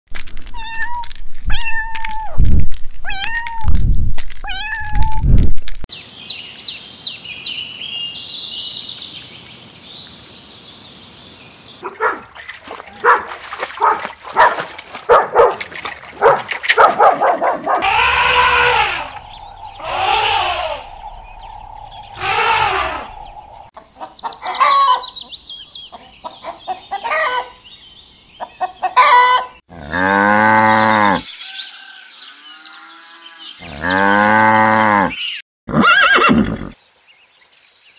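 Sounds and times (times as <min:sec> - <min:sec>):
chickens clucking: 0:17.7 - 0:25.1, 0:25.9 - 0:27.6, 0:28.4 - 0:29.5
high hissing noise: 0:17.8 - 0:23.7.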